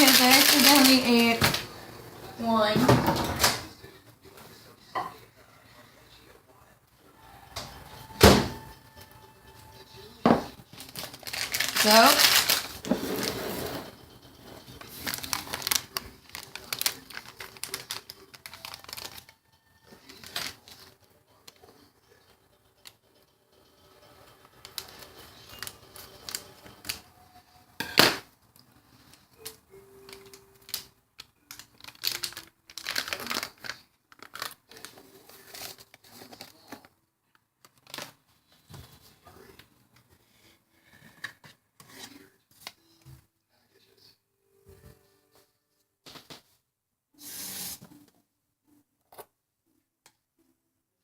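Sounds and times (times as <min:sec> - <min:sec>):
packet crinkling and rustling: 0:00.0 - 0:01.7, 0:10.7 - 0:13.3, 0:14.7 - 0:19.4, 0:20.0 - 0:21.0, 0:24.6 - 0:27.0, 0:30.1 - 0:36.8, 0:37.6 - 0:38.2
kitchen clicks and knocks: 0:02.7 - 0:03.7.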